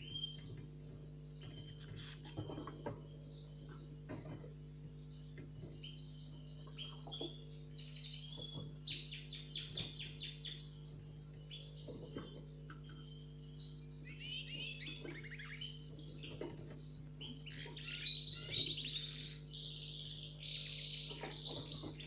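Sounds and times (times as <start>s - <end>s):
songbirds chirping and trilling: 0.0s - 22.0s
steady low hum: 0.0s - 22.0s.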